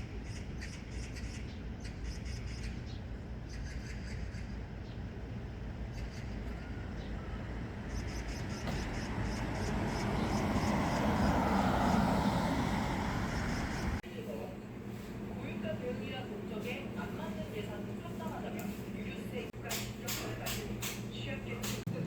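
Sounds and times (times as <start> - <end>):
street traffic rumble: 0.0 - 22.0
vehicle passing: 6.6 - 14.0.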